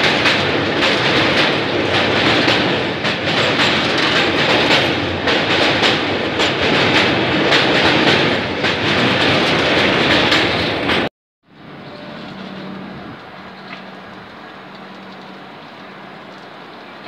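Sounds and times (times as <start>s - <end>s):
train wheel clacks: 0.0s - 11.1s
train rumbling over bridge: 0.0s - 17.0s.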